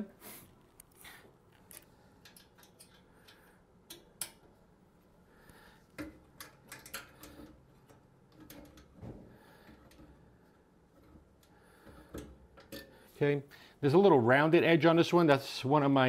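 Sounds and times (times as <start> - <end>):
allen key clicking on screws: 1.7 - 4.5.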